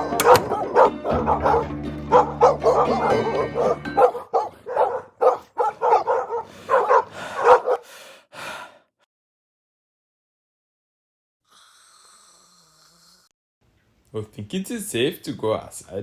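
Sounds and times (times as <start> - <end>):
low held music: 0.0 - 5.1
dogs barking and yipping: 0.0 - 7.8.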